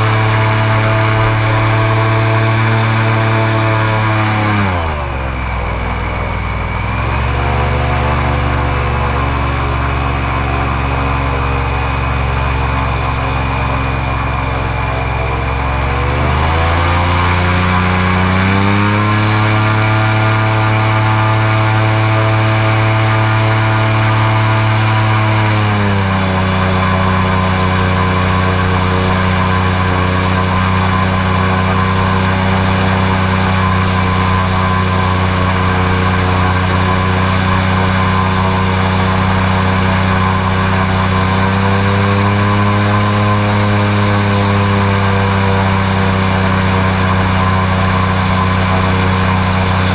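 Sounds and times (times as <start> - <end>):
airboat engine and propeller: 0.0 - 49.9.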